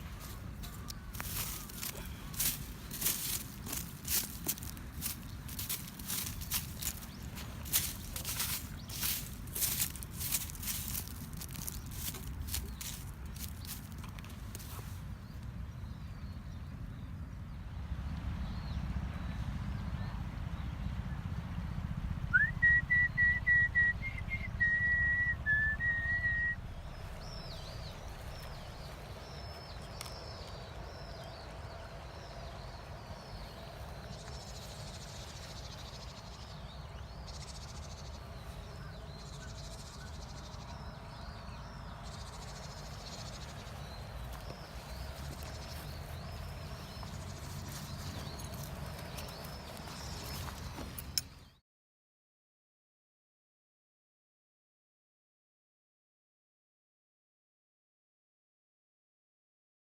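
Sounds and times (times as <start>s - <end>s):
low outdoor rumble: 0.0s - 51.2s
high wavering whistle: 22.4s - 26.6s.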